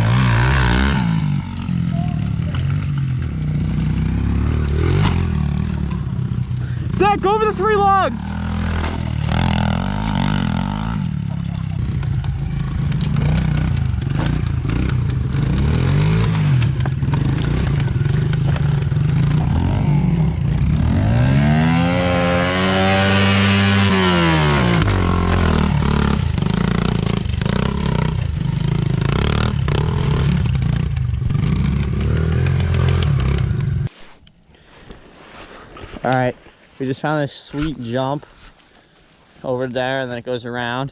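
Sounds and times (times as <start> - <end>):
pit bike engines running: 0.0 - 33.9
engine revving up: 7.6 - 12.0, 12.9 - 28.2.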